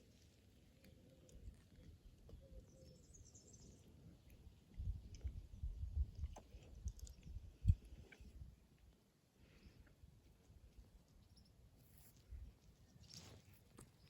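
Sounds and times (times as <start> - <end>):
faint garden ambience: 0.0 - 14.0
bird chirp: 2.3 - 4.0.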